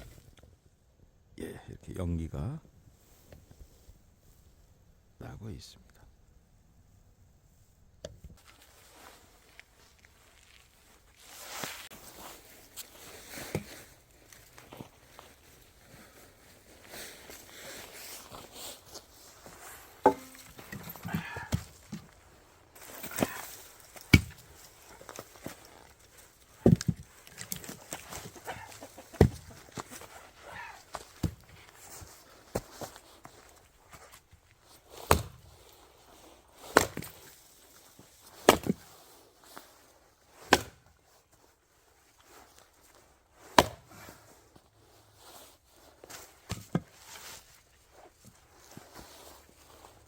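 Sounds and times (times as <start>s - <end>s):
axe splitting firewood: 13.4s - 13.9s, 19.8s - 22.2s, 22.8s - 31.6s, 35.0s - 35.6s, 36.7s - 37.3s, 38.2s - 38.9s, 40.4s - 40.9s, 43.4s - 44.1s, 46.4s - 47.5s.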